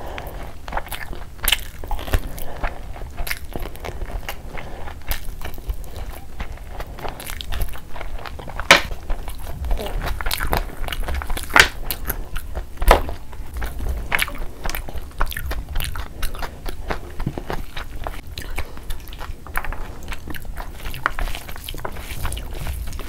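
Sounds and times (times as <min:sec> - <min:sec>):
wet chewing smacks: 0:00.1 - 0:23.0
hand kneading rice: 0:20.6 - 0:23.0.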